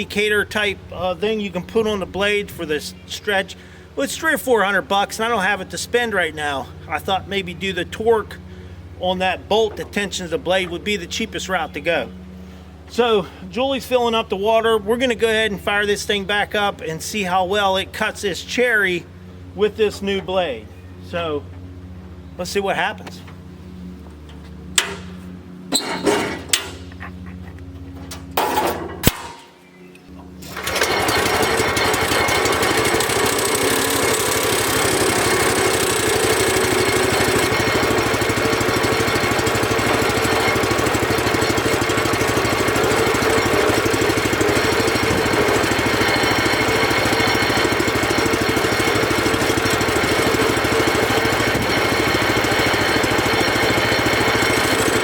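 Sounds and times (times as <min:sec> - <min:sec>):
sawmill engine running: 0:00.0 - 0:29.3, 0:30.1 - 0:55.0.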